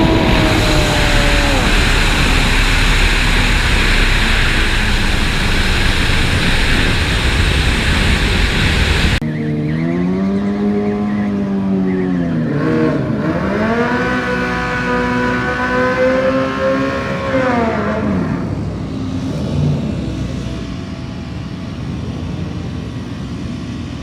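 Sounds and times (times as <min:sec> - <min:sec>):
single engine revving: 0:00.0 - 0:11.7, 0:12.4 - 0:18.6
motorcycle engines roaring: 0:00.0 - 0:24.0.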